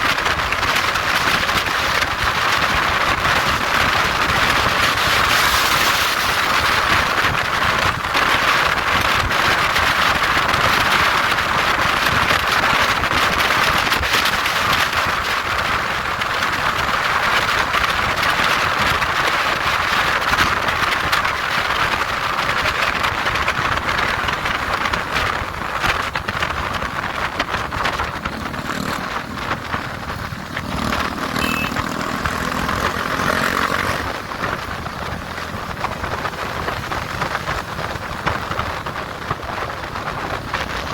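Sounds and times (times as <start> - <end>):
wind rushing: 0.0 - 9.2
road noise: 0.0 - 40.9
motorcycle engine running: 26.0 - 40.9.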